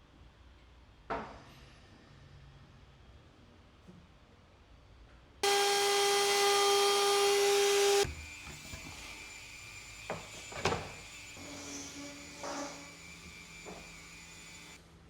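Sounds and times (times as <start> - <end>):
power tool motor whining: 5.4 - 14.8.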